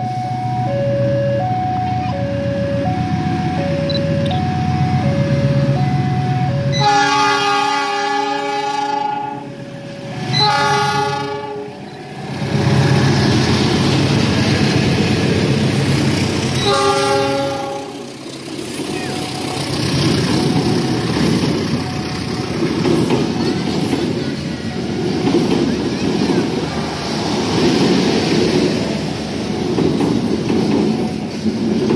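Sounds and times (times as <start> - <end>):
diesel locomotive horn: 0.9 - 11.9, 16.6 - 18.2
train wheels clattering over rails: 11.9 - 31.9.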